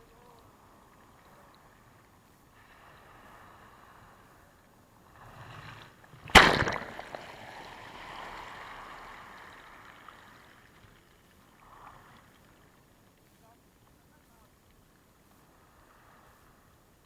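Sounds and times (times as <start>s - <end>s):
sea wave crashing: 6.3s - 9.8s
wash hissing up the beach: 15.2s - 17.0s.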